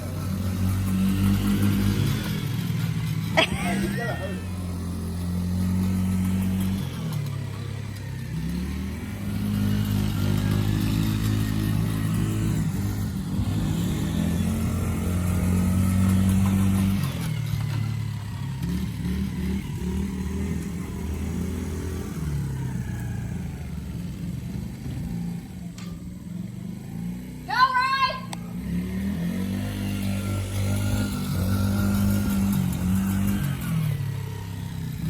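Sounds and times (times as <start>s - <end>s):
engine revving: 0.0s - 35.0s.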